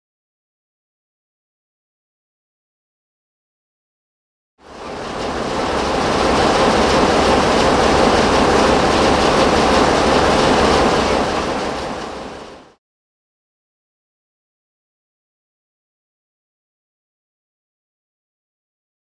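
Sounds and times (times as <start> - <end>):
train running on rails: 4.6 - 12.8.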